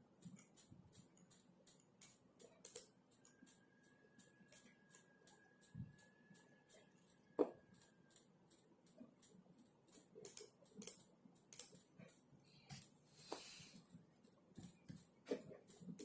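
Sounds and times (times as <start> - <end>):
keyboard typing: 0.0 - 13.0, 13.7 - 16.0
faint high whine: 2.2 - 10.0.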